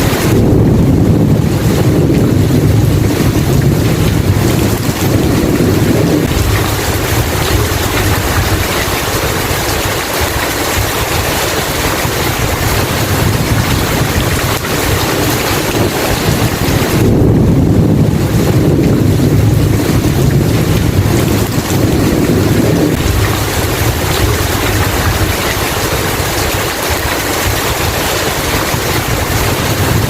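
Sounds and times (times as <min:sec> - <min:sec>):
heavy rain falling: 0:00.0 - 0:30.0
low thunder rumble: 0:00.0 - 0:30.0.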